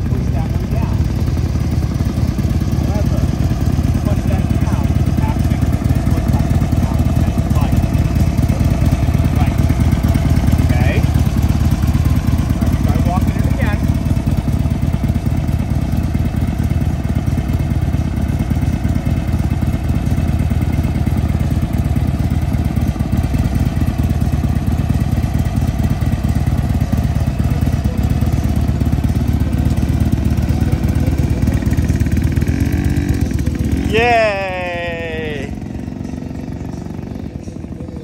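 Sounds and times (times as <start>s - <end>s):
motorcycle engine idling: 0.0s - 38.0s.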